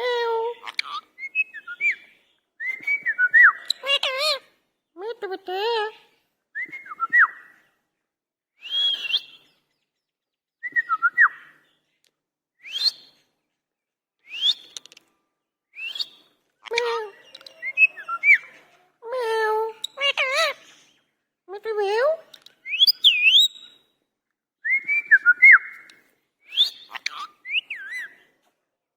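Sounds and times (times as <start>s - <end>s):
parakeet whistles and calls: 0.6s - 4.4s, 8.6s - 9.6s, 12.6s - 13.1s, 14.3s - 14.8s, 15.8s - 18.6s, 22.6s - 23.8s, 26.5s - 28.2s.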